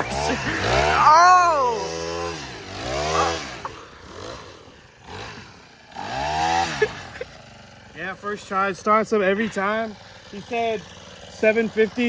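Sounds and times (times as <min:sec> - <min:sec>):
engine revving in short blips: 0:00.0 - 0:07.2.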